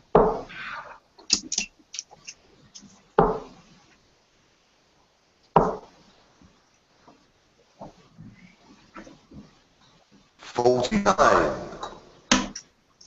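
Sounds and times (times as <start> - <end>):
darts striking a dartboard: 12.3 - 12.6.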